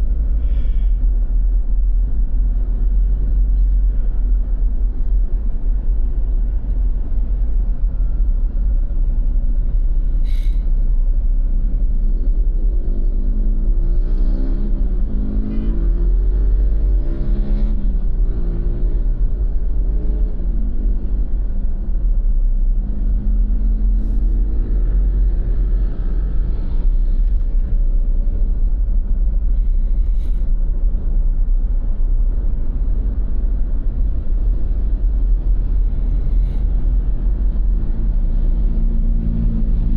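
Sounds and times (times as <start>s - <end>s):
heavy low traffic rumble: 0.0s - 39.9s
motor vehicles passing: 0.0s - 39.9s.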